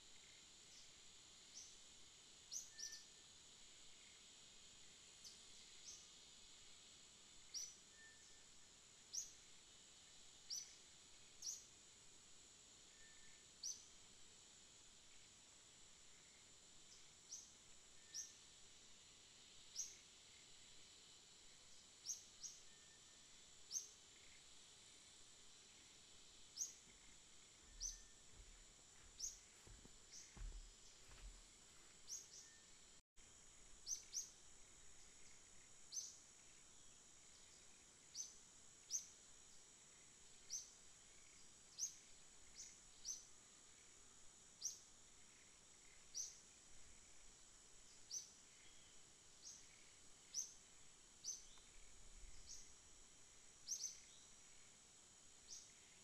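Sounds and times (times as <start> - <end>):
faint high-pitched whine: 0.0 - 56.0
bird chirping: 26.6 - 31.4, 32.0 - 32.8.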